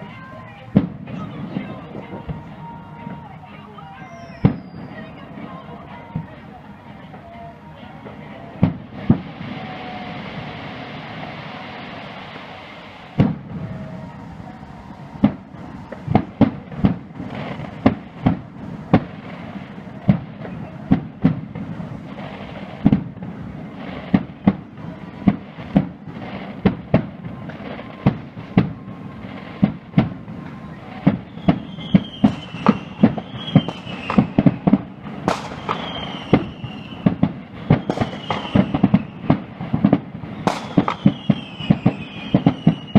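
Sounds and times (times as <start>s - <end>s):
hissing rush: 0.0s - 42.8s
firework shells exploding: 0.0s - 42.9s
falling whistles: 3.8s - 5.2s, 30.4s - 34.7s, 35.4s - 39.3s, 40.3s - 42.9s.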